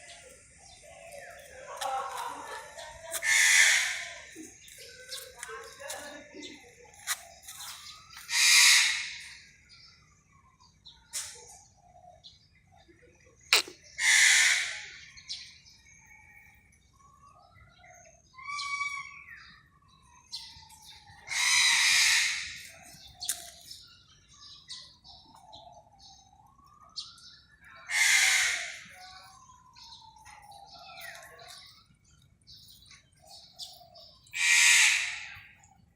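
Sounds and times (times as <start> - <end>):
peafowl calling: 0.7 - 6.1, 7.0 - 9.4, 13.5 - 15.0, 18.4 - 19.5, 21.2 - 23.6, 27.9 - 29.2, 33.6 - 35.7.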